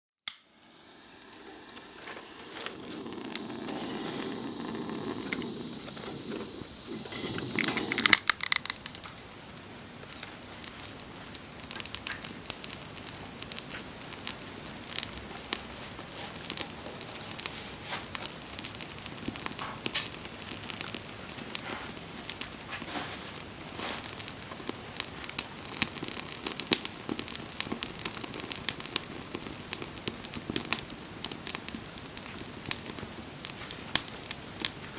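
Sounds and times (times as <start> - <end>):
bonfire crackling and popping: 0.3 - 34.9
steady rushing noise: 0.5 - 8.2.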